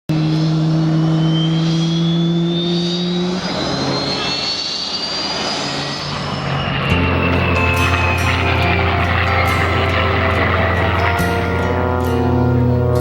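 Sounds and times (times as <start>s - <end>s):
airplane engine whine: 0.1s - 13.0s
steady low hum: 5.5s - 13.0s.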